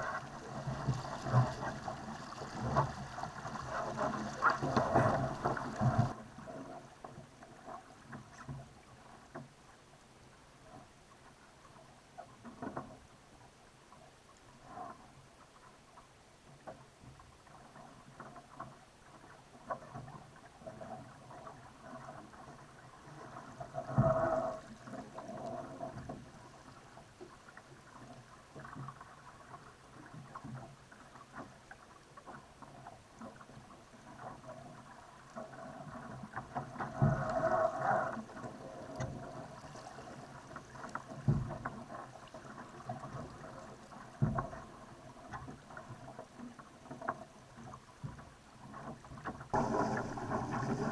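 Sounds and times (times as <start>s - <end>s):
water slapping against boat hull: 0.0s - 6.2s, 46.8s - 50.9s
water splashing surges: 0.0s - 6.5s, 49.5s - 50.9s
boat knocking on waves: 41.0s - 42.0s, 49.4s - 50.9s.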